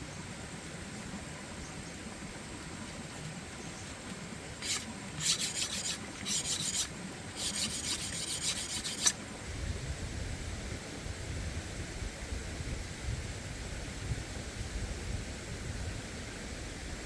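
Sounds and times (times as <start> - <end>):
rasping scraping strokes: 4.6 - 9.2.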